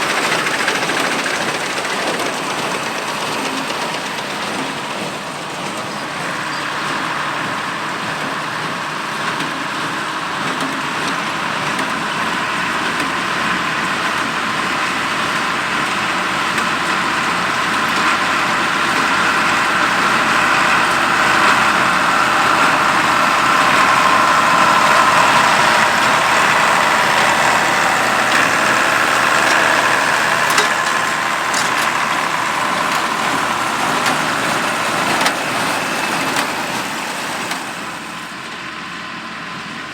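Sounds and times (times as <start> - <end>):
diesel tractor running: 0.0 - 39.9.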